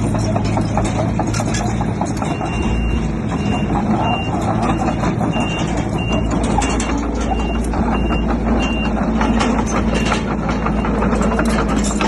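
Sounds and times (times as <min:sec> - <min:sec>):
diesel engine rumble: 0:00.0 - 0:12.0
metallic clanks: 0:00.0 - 0:12.0
reversing alarm beeping: 0:02.2 - 0:12.0.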